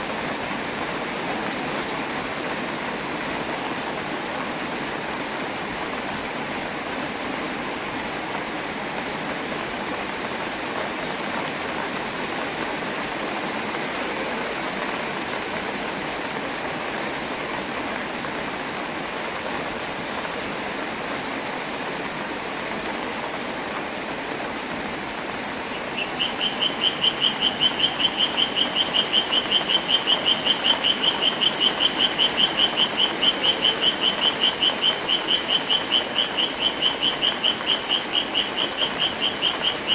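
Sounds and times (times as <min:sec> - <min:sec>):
steady rain: 0:00.0 - 0:39.9
animal high chirps: 0:25.7 - 0:39.9.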